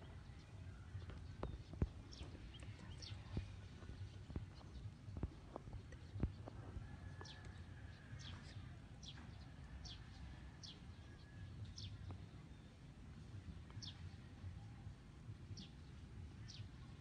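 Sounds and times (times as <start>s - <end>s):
faint low rumble: 0.0s - 17.0s.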